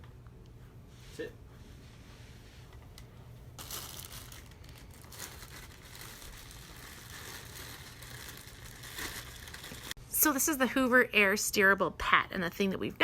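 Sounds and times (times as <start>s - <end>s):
rustling crinkling handling noise: 2.7s - 10.0s.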